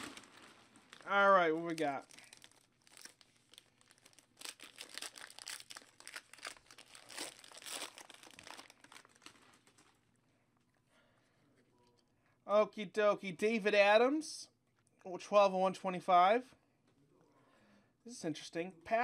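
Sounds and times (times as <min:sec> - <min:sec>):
wrapper crinkling and rustling: 0:00.0 - 0:10.1.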